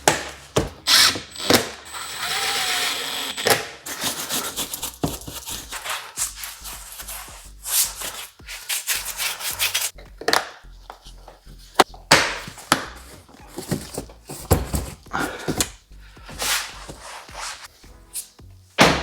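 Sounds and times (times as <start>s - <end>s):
hands rubbing and scraping parts: 3.8s - 18.6s.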